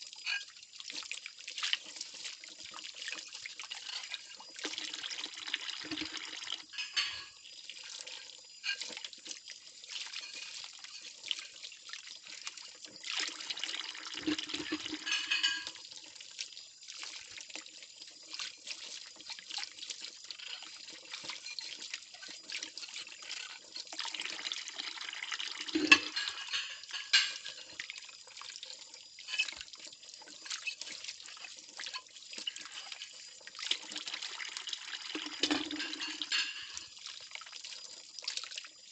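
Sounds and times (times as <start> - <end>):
water splashing and trickling: 0.0 - 38.9
ceramic plates clinking: 6.7 - 7.4, 14.7 - 15.8, 25.8 - 27.6, 35.4 - 36.9.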